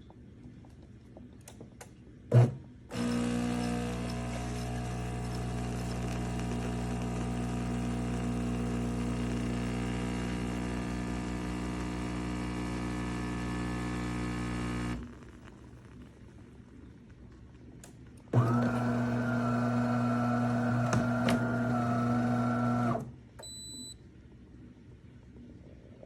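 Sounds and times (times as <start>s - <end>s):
espresso machine humming: 2.9s - 15.5s, 18.4s - 23.1s.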